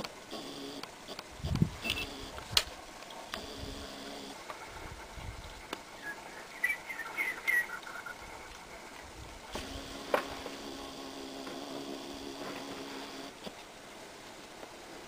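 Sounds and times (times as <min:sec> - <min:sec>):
sharp clicks: 0:00.0 - 0:03.6
faint outdoor background noise: 0:00.0 - 0:15.0
faint steady hum: 0:00.0 - 0:15.0
small bird chirping: 0:06.0 - 0:08.6.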